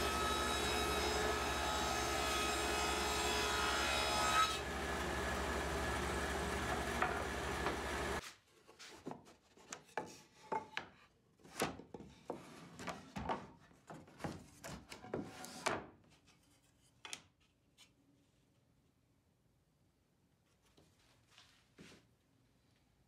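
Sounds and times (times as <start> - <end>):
wooden boards knocking: 6.7 - 8.0.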